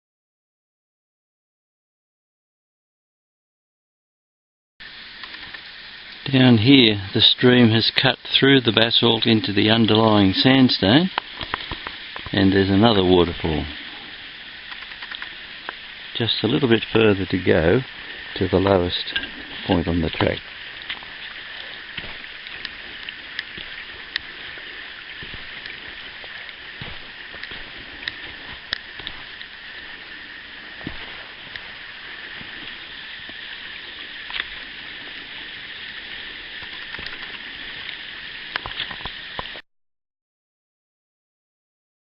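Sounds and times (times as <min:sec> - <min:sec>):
running water: 0:04.8 - 0:39.6
insect chorus: 0:06.2 - 0:39.6.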